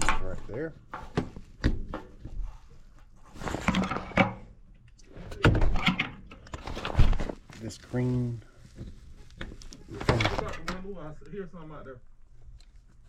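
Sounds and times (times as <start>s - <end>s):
knocks and clunks of tools: 5.3s - 7.3s.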